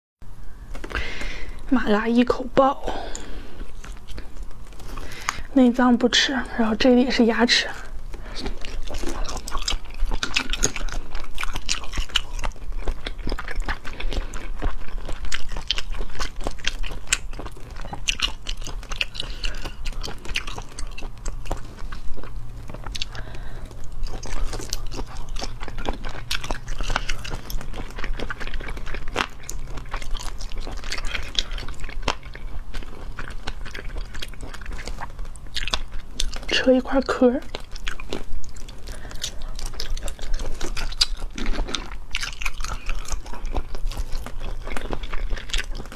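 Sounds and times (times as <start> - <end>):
low steady hum: 0.2 - 45.9
crunchy chewing and biting: 2.8 - 5.9, 6.9 - 45.9.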